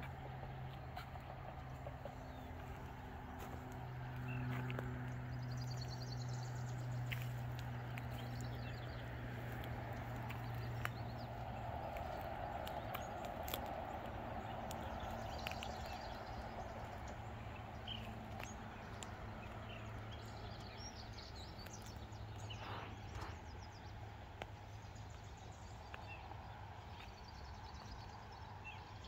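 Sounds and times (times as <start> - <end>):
road traffic rumble: 0.0 - 29.0.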